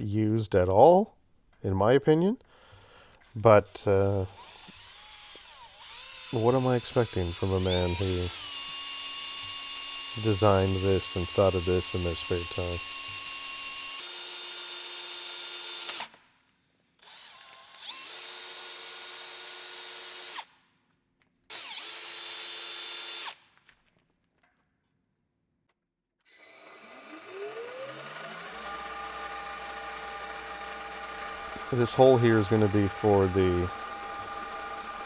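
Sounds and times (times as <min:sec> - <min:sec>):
electric drill whining: 0:03.2 - 0:16.2, 0:17.0 - 0:20.5, 0:21.5 - 0:23.4, 0:26.2 - 0:35.0.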